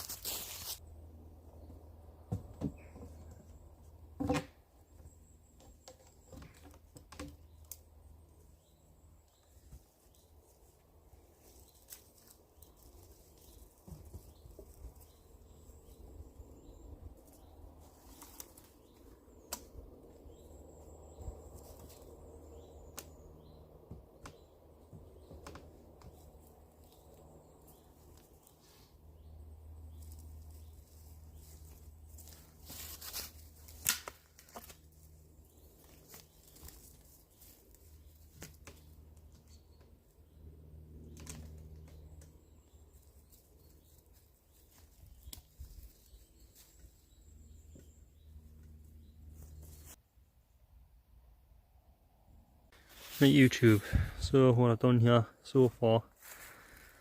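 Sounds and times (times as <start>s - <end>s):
sticks snapping and knocking: 19.4s - 19.8s, 33.0s - 34.9s.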